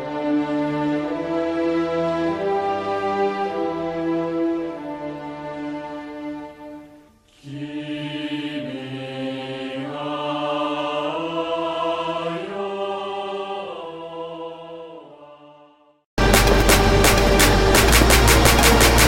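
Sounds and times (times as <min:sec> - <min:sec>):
choir singing held chords: 0:07.3 - 0:19.0.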